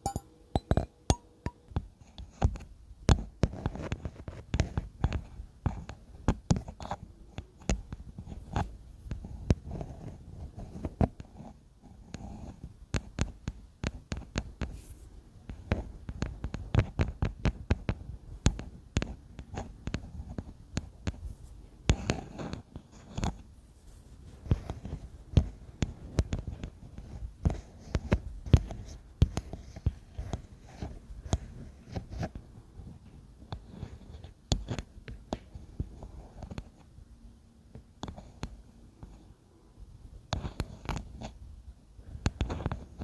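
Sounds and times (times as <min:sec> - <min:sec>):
fingers tapping: 0:00.0 - 0:01.6.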